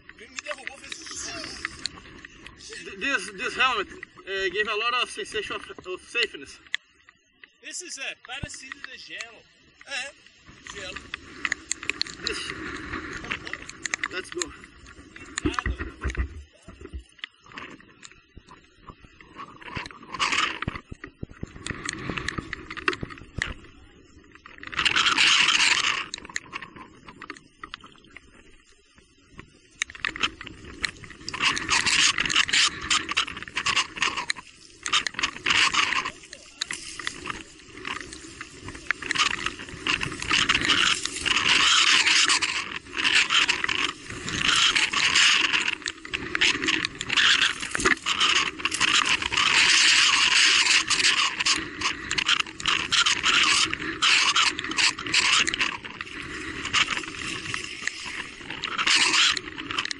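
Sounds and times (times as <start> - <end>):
bike rattling: 0.0 - 7.4, 8.2 - 59.9
tyres crunching on trail: 29.0 - 59.9.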